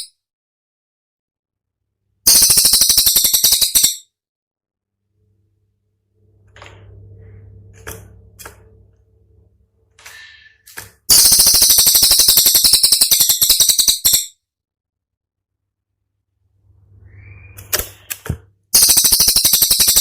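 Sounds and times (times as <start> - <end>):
bird rattling trill: 2.3 - 4.1, 11.1 - 14.4, 18.7 - 20.0.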